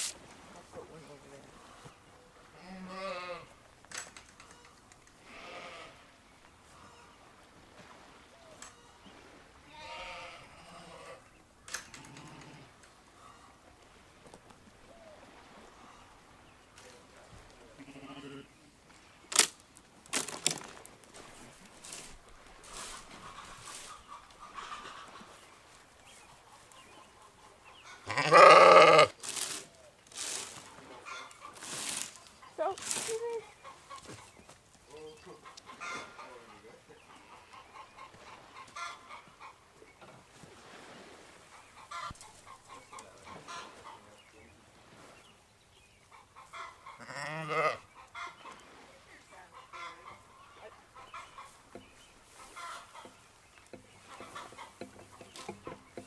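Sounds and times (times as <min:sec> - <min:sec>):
sheep bleating: 0:02.6 - 0:03.5, 0:05.2 - 0:06.0, 0:09.7 - 0:11.2, 0:17.8 - 0:18.5, 0:28.1 - 0:29.2, 0:47.0 - 0:47.8.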